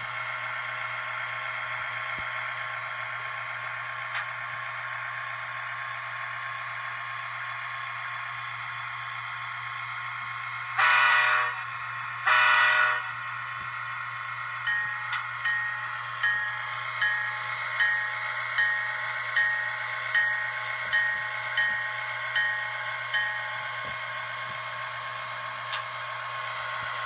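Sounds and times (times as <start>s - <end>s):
model locomotive diesel engine sound: 0.0s - 27.0s
short horn blasts: 10.8s - 11.6s, 12.3s - 13.1s.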